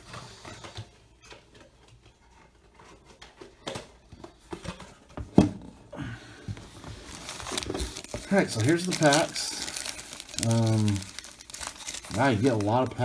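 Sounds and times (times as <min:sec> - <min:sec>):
cardboard and card packs rustling: 0:06.2 - 0:13.0.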